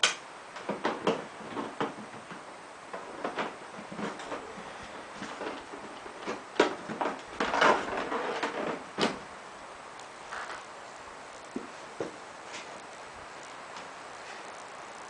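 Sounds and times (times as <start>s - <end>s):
sharp clicks and knocks: 0.0s - 9.3s
scraping and rustling: 0.6s - 9.4s, 10.2s - 14.8s.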